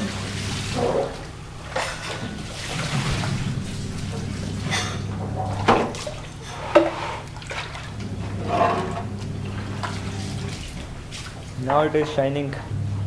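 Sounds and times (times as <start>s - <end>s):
scrubbing by hand: 0.0s - 11.6s
water sloshing and splashing: 0.0s - 12.7s
steady low hum: 0.0s - 13.0s.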